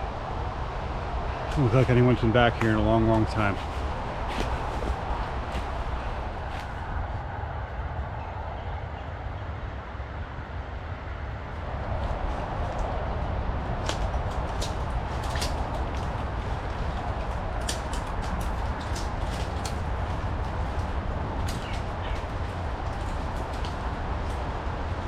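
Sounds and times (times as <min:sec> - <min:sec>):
steady low noise: 0:00.0 - 0:25.0
twigs snapping and crackling: 0:01.4 - 0:06.8, 0:12.0 - 0:13.0, 0:13.7 - 0:25.0
footsteps through wet undergrowth: 0:01.6 - 0:07.0.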